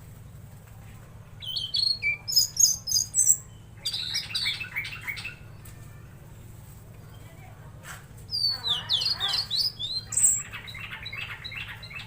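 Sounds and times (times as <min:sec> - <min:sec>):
songbird chirping and whistling: 0:01.4 - 0:05.7, 0:08.3 - 0:12.0.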